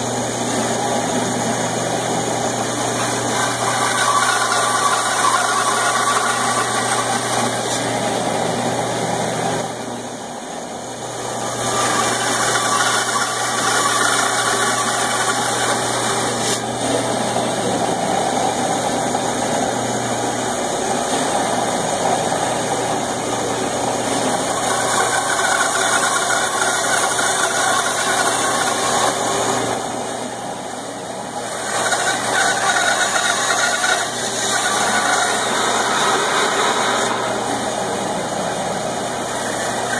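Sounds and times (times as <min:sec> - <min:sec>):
steady hum: 0:00.0 - 0:39.9
band saw cutting wood: 0:02.7 - 0:08.0, 0:11.4 - 0:16.9, 0:23.3 - 0:29.9, 0:31.4 - 0:38.1.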